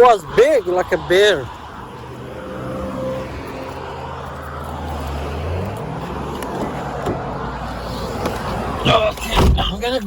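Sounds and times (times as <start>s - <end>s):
car engine humming: 0.0s - 10.0s.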